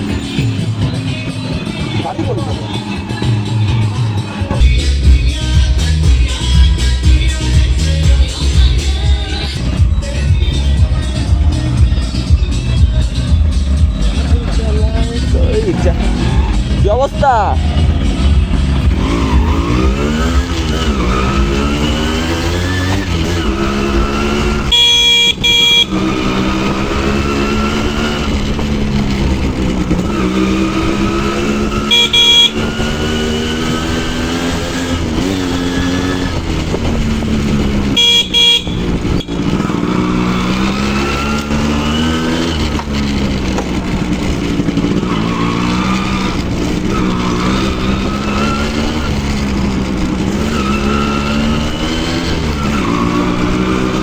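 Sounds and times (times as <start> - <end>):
two-stroke motorcycle engine revving: 0.0 - 54.0
horn honking: 13.1 - 54.0.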